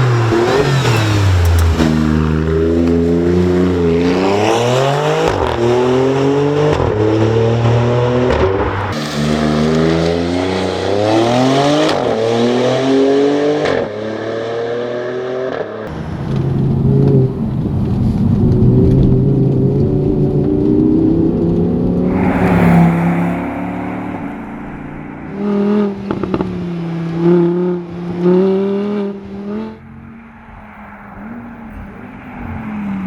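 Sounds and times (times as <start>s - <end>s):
car engine accelerating through gears: 0.0s - 15.7s.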